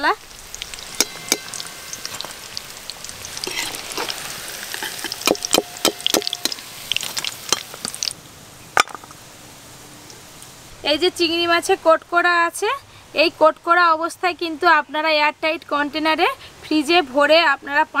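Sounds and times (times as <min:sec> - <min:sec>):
food sizzling in hot oil: 0:00.0 - 0:08.2
ladle clinking on metal pan: 0:00.9 - 0:01.7, 0:04.8 - 0:06.6.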